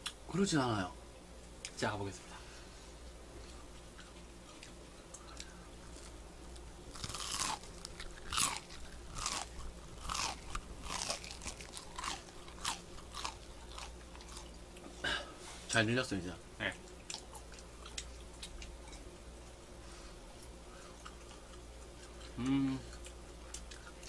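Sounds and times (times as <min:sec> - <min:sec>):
crunchy chewing: 0:03.4 - 0:15.0, 0:16.7 - 0:19.6, 0:20.3 - 0:24.0.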